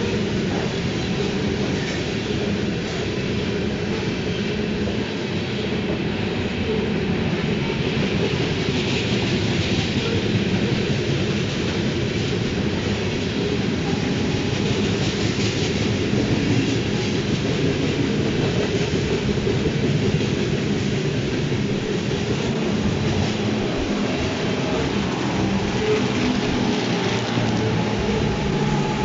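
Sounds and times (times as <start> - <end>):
freight train rolling past: 0.0 - 29.0.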